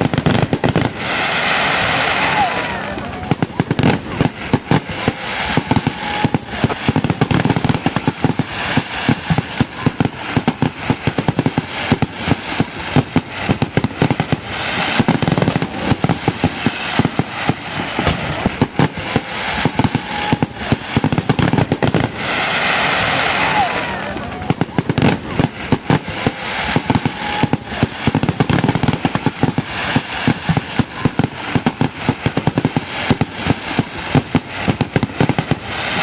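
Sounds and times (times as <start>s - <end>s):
fireworks bangs and crackles: 0.0s - 36.0s.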